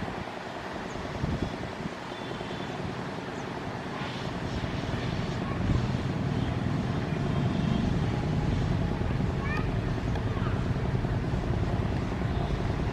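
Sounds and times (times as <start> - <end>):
train passing: 2.6 - 12.9.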